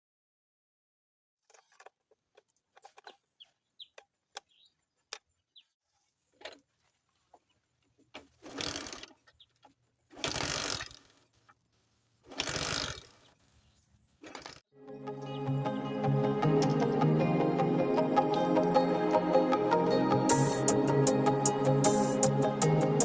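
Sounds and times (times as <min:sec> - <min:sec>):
rapid rattling mechanical noise: 0:10.1 - 0:11.2, 0:12.3 - 0:13.2.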